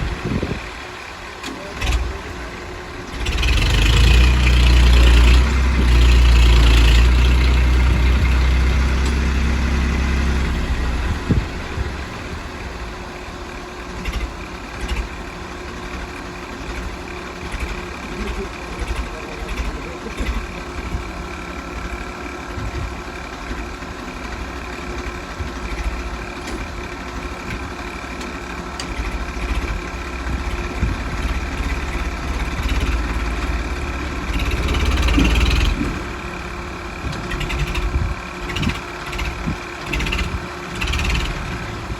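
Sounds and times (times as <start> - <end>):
tractor diesel engine idling: 0.0 - 41.9.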